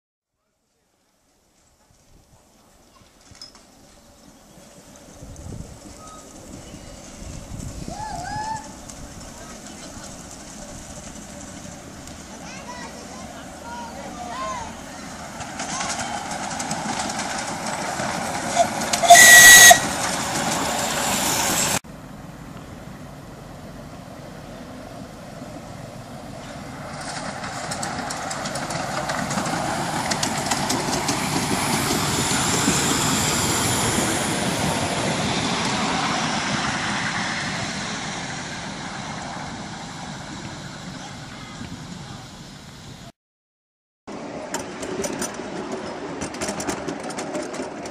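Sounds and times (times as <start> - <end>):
miniature train running: 2.8 - 21.8, 25.4 - 42.4, 44.1 - 47.9
train whistle blast: 18.6 - 20.0.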